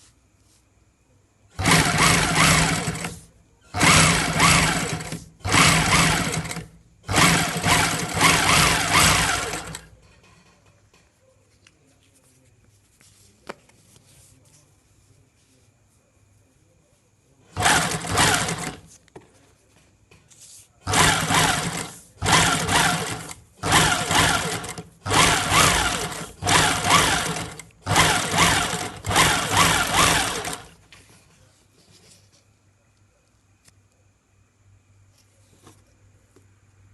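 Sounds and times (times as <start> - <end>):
sewing machine stitching: 1.5 - 10.0, 17.5 - 18.9, 20.8 - 30.8.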